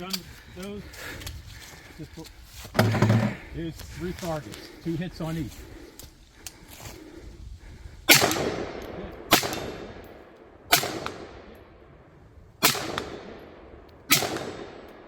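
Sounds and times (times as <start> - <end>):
rifle shots with echo: 8.1 - 11.9, 12.6 - 15.0.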